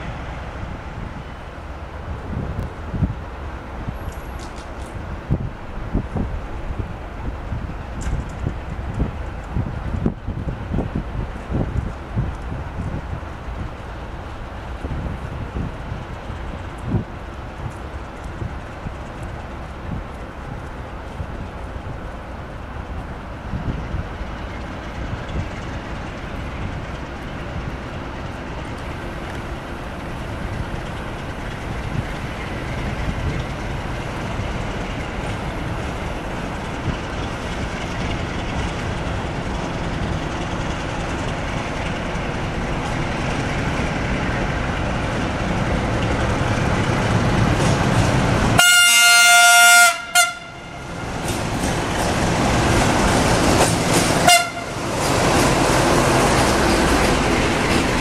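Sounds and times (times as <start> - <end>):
diesel locomotive engine rumble: 0.0 - 58.0
train horn blast: 48.6 - 50.9, 54.2 - 54.8.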